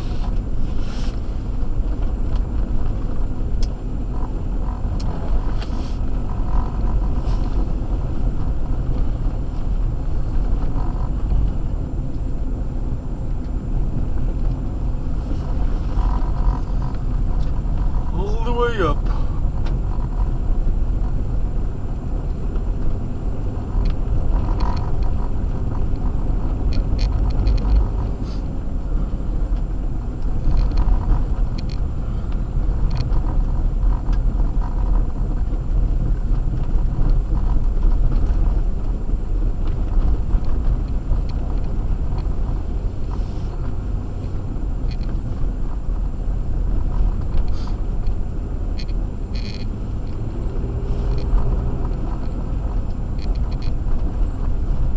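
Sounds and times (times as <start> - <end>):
tyres and engine rumbling on snow: 0.0 - 54.9
faint ticks: 23.8 - 26.1, 48.8 - 54.9.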